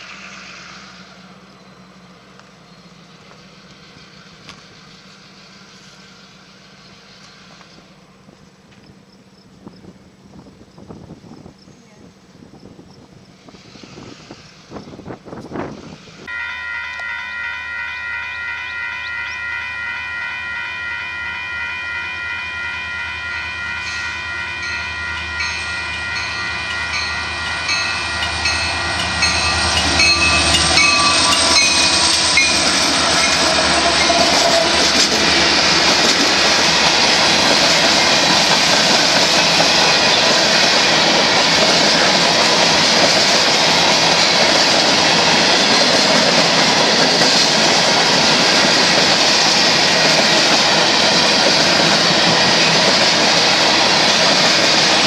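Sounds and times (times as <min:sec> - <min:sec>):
high bell ping: 0:16.3 - 0:33.4
train horn chord: 0:16.3 - 0:35.5
freight cars rumbling and clattering: 0:26.2 - 0:55.0.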